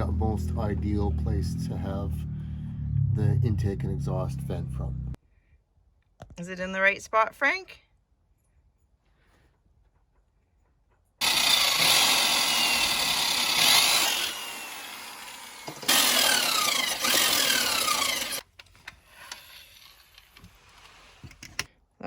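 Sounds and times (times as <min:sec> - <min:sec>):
power tool cutting metal: 0:11.2 - 0:18.4.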